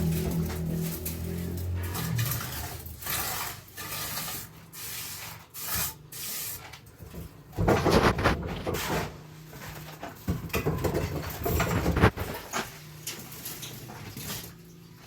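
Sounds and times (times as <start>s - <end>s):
rubbing or scraping strokes: 0.0s - 6.7s, 7.6s - 9.2s.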